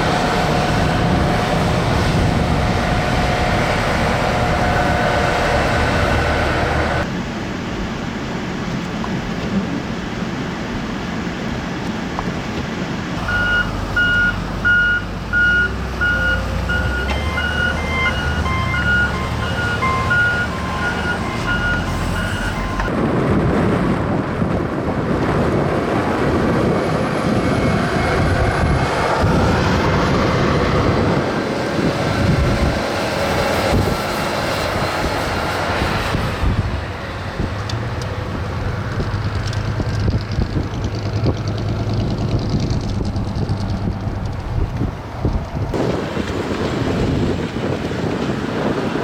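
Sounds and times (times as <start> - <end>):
vehicles rushing past: 0.0 - 7.2, 13.0 - 49.0
wind: 0.0 - 49.0
electronic beeps: 13.3 - 22.9.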